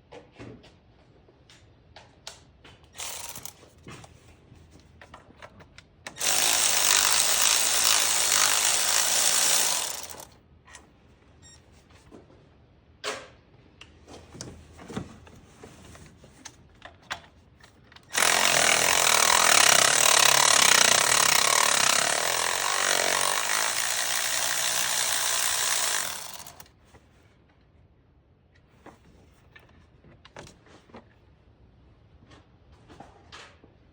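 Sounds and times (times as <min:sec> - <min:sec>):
power tool running loudly: 0:03.0 - 0:03.5, 0:06.2 - 0:10.3, 0:18.1 - 0:26.6.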